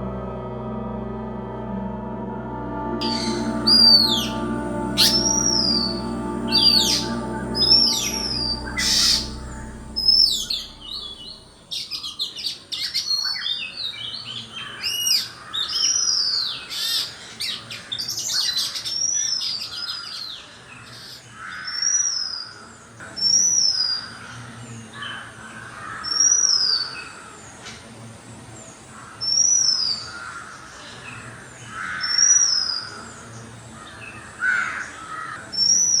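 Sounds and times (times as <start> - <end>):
birds calling: 3.0 - 11.5
high descending bird call: 3.0 - 11.8.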